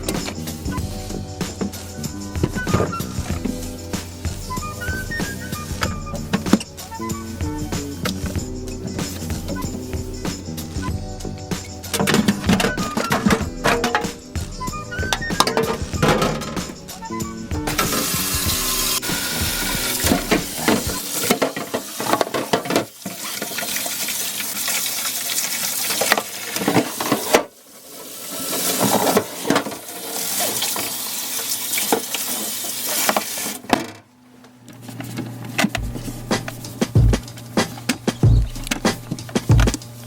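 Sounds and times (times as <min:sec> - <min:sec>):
knocks and clatter of dishes: 0:11.9 - 0:14.2, 0:15.2 - 0:16.8, 0:20.0 - 0:23.0
tap water running into sink: 0:17.7 - 0:33.6.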